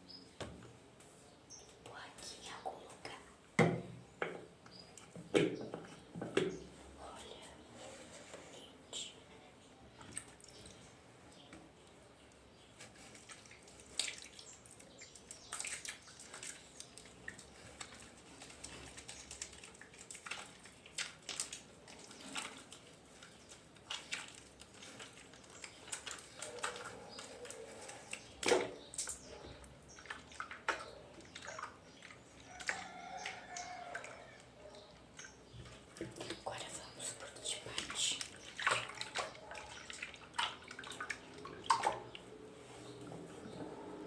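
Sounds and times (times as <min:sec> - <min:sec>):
water dripping: 0:09.9 - 0:42.4
wet squishy toy squishing: 0:13.0 - 0:34.3.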